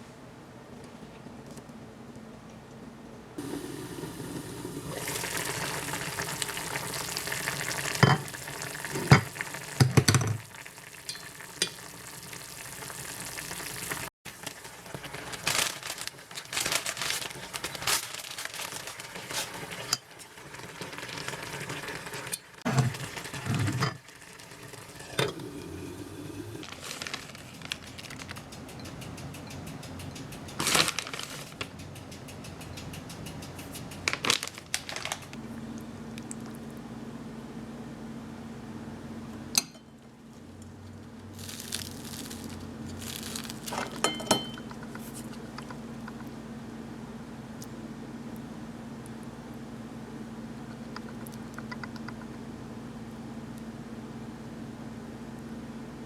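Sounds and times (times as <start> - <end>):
food sizzling in a pan: 3.4 - 15.5.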